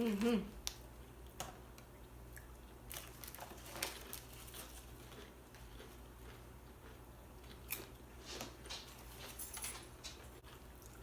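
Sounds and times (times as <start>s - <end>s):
chewing chips: 2.3s - 9.4s.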